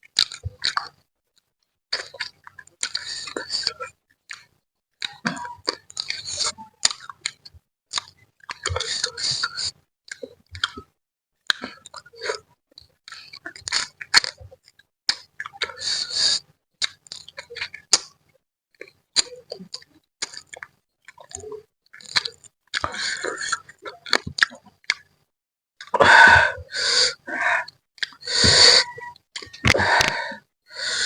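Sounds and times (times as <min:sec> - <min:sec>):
wet chewing and lip smacking: 0:00.1 - 0:01.0, 0:01.9 - 0:10.9, 0:11.5 - 0:15.8, 0:16.8 - 0:18.2, 0:18.8 - 0:25.1
hissing slurps: 0:28.3 - 0:29.0.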